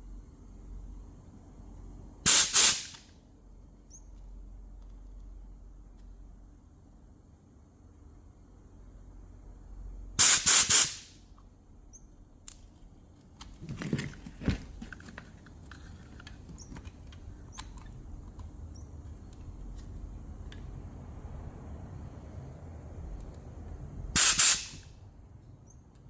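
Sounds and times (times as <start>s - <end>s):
pressurised spray hiss: 2.3s - 3.1s, 10.2s - 11.2s, 24.2s - 24.9s
parts clicking and knocking: 12.5s - 20.8s.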